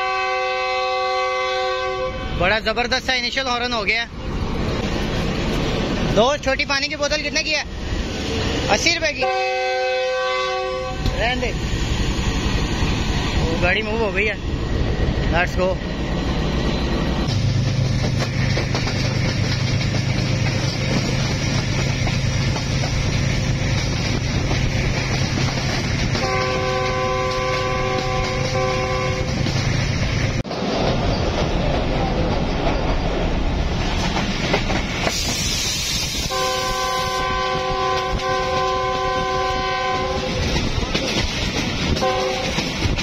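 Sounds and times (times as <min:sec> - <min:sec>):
locomotive air horn: 0:00.0 - 0:02.4, 0:09.2 - 0:11.2, 0:26.2 - 0:29.4, 0:36.1 - 0:40.4, 0:42.0 - 0:42.6
train wheels rumbling on rails: 0:00.0 - 0:43.0
rushing air: 0:07.6 - 0:09.0, 0:10.9 - 0:26.3, 0:29.1 - 0:37.8.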